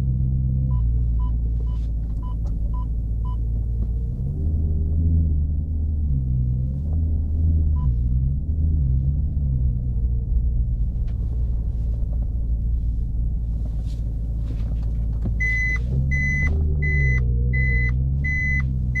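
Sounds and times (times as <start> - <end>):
car engine rumbling: 0.0 - 19.0
high electronic beep: 15.4 - 19.0.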